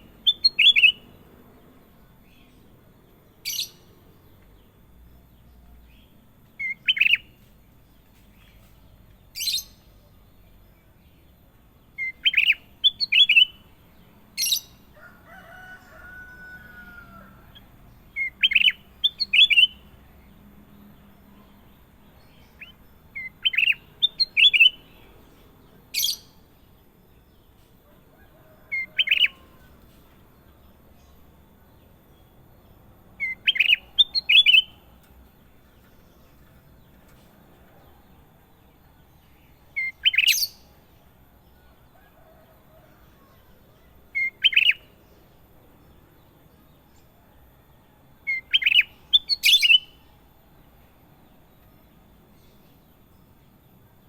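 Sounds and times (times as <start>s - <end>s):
bulbul calling: 0.0s - 1.1s, 12.0s - 13.7s, 17.6s - 19.9s, 33.2s - 34.8s.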